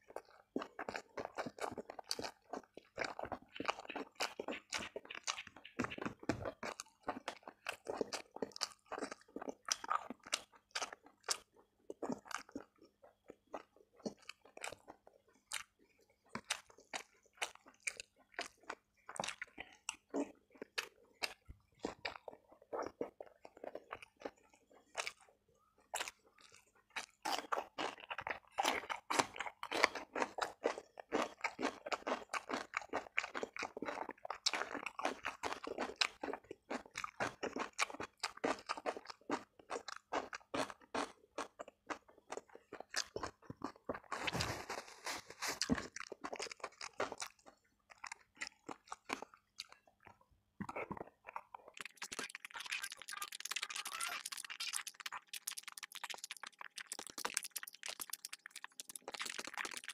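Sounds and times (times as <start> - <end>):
close chewing with wet mouth sounds: 0.0 - 59.9
crisp crunches: 43.9 - 47.4, 51.3 - 59.9.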